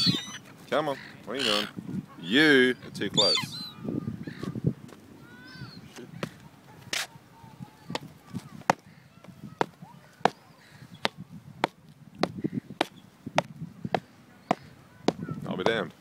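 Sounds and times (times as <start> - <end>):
gull calls: 0.0 - 2.4, 3.2 - 4.6.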